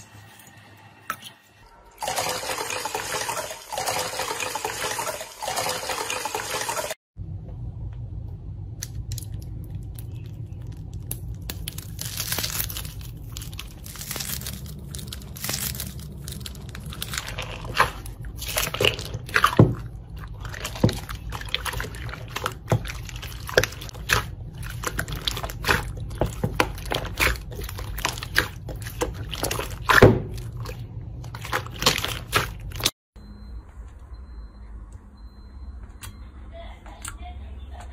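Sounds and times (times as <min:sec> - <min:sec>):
steady low hum: 0:07.2 - 0:37.9
slime squished and popping: 0:08.8 - 0:30.7.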